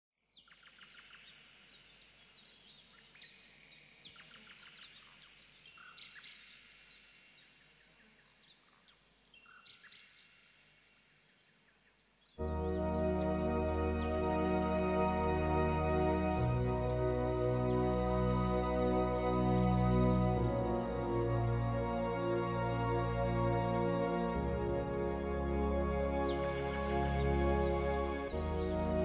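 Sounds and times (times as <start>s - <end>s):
small birds chirping: 0.3s - 12.4s
music: 12.4s - 29.0s.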